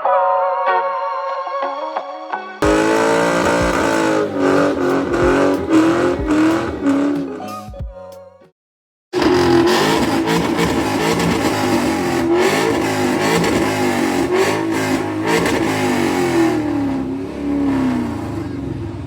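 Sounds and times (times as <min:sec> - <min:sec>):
exhaust cracks: 0:02.6 - 0:07.4, 0:09.2 - 0:18.6
car engine revving: 0:02.6 - 0:07.5, 0:09.2 - 0:19.0.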